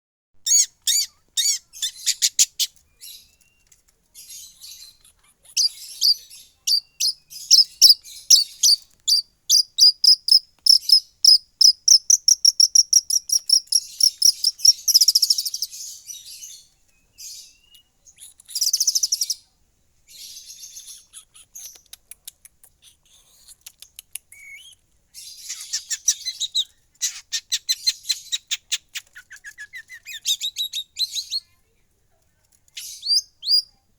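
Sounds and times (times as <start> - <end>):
bird singing rapid high chirps: 0.4 - 3.4, 4.3 - 16.6, 17.2 - 19.4, 32.8 - 33.7.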